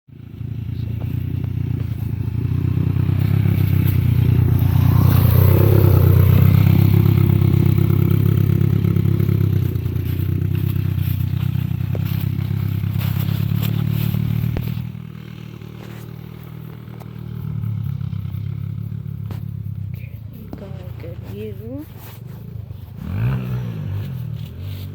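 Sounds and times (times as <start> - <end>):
motorcycle engine running: 0.1 - 24.9.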